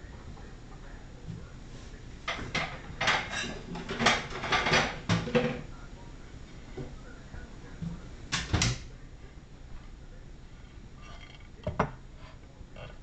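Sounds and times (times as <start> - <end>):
dishes and utensils clattering: 2.3 - 5.7, 11.0 - 13.0.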